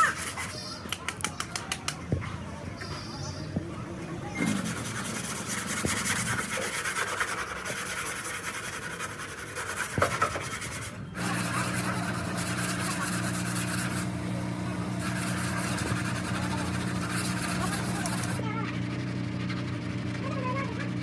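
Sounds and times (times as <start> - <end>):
sanding on car bodywork: 0.0 - 0.8, 4.4 - 18.4
low machine hum: 10.8 - 21.0.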